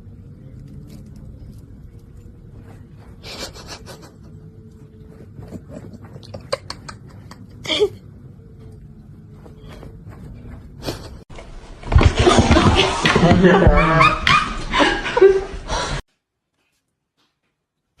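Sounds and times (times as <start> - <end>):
faint steady hum: 0.0 - 11.5.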